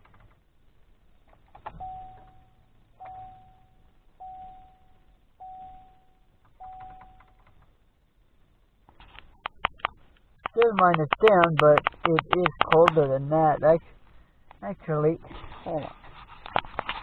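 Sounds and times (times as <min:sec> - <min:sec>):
vehicle warning chime dinging: 0:01.6 - 0:07.6.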